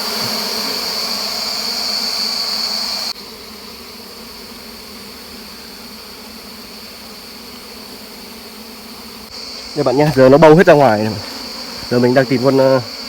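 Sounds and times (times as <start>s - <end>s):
high-pitched insect tone: 0.0s - 3.4s, 9.2s - 13.0s
honeybees humming: 0.0s - 13.0s.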